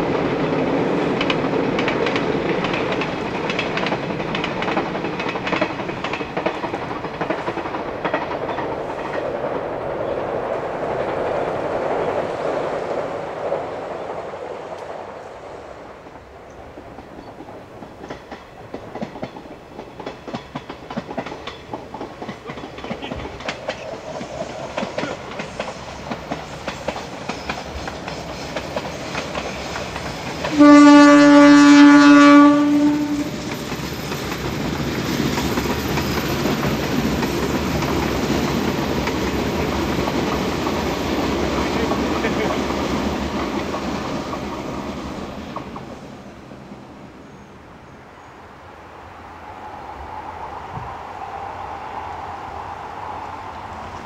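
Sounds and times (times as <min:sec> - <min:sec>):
train wheels clicking over rail joints: 0:00.0 - 0:10.2, 0:16.5 - 0:31.5, 0:32.4 - 0:46.2
train horn blast: 0:30.5 - 0:33.6.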